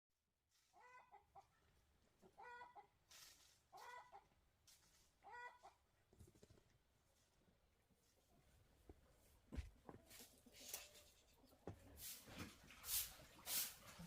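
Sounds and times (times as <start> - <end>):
chicken clucking: 0.6 - 4.4, 5.2 - 6.0.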